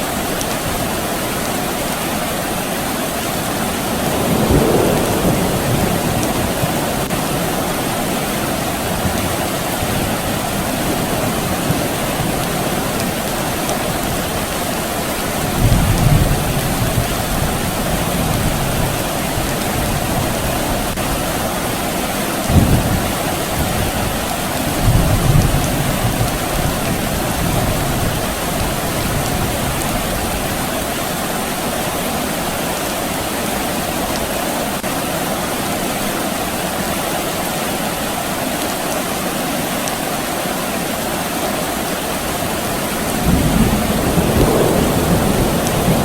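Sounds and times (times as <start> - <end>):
steady rain falling: 0.0 - 46.0
distant thunder rumbling: 3.6 - 14.6, 15.4 - 21.2, 22.5 - 30.6, 42.7 - 46.0.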